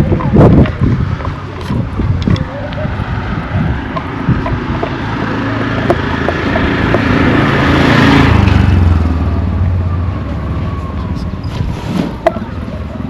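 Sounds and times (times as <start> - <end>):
vehicle driving past: 2.7 - 10.9.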